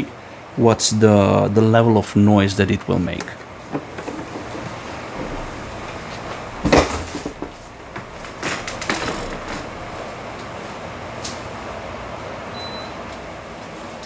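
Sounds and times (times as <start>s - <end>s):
room hum: 0.0s - 14.0s
knocks and clatters: 3.7s - 10.6s.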